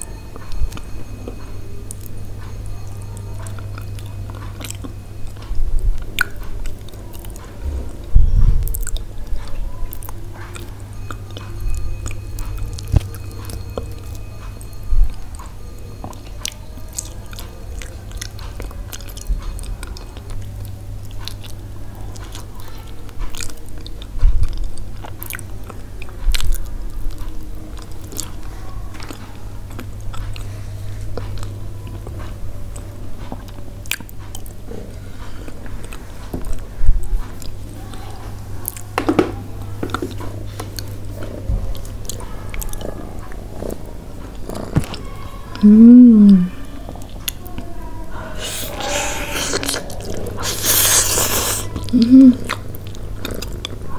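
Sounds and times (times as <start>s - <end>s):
chewing soft food: 0.0s - 7.8s, 8.6s - 38.9s, 39.9s - 53.9s
steady low hum: 0.0s - 53.9s
wet mouth clicks: 48.4s - 52.6s.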